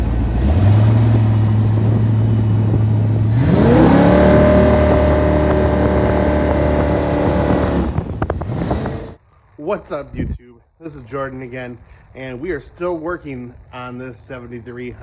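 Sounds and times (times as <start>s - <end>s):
boat engine idling and revving: 0.0s - 9.2s.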